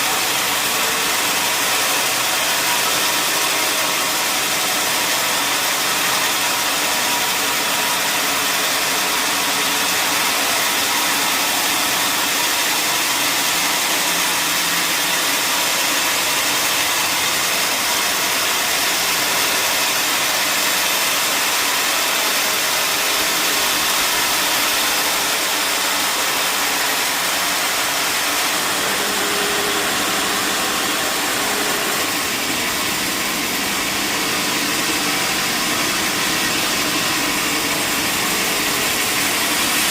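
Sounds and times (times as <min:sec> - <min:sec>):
sawmill saw cutting log: 0:00.0 - 0:39.9.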